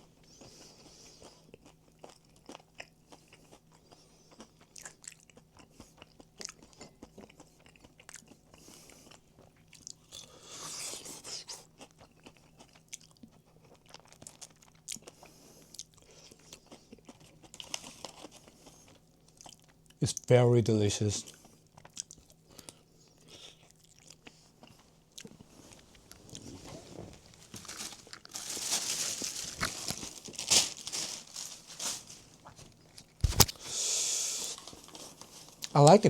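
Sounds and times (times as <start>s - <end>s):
crunching bites of fried chicken: 0.4s - 20.3s, 21.2s - 25.4s.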